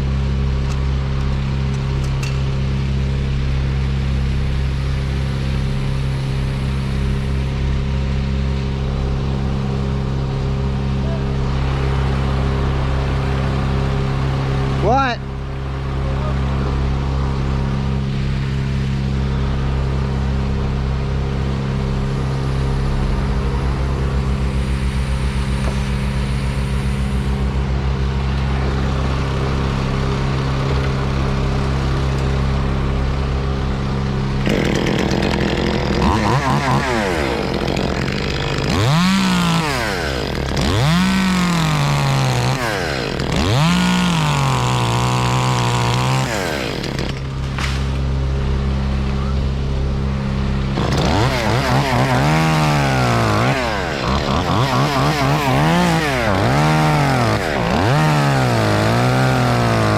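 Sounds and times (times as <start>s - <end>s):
engine idling: 0.0s - 36.3s
chainsaw revving: 34.2s - 47.6s, 50.7s - 59.9s.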